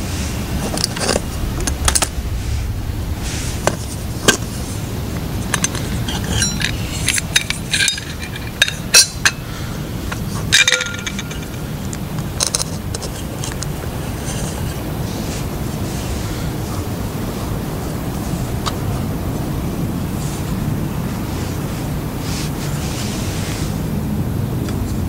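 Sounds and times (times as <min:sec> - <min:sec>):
ringing metal clatter: 0:00.6 - 0:09.4, 0:10.5 - 0:12.6
metal cookware clinking: 0:10.5 - 0:11.6.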